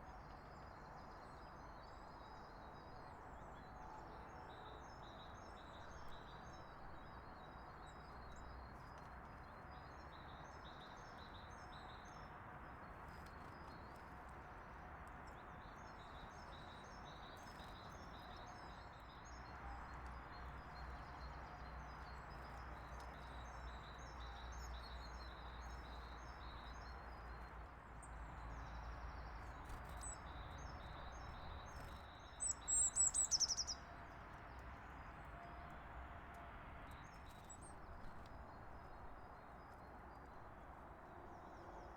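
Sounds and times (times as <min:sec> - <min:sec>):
small songbirds chirping: 0:15.2 - 0:33.9.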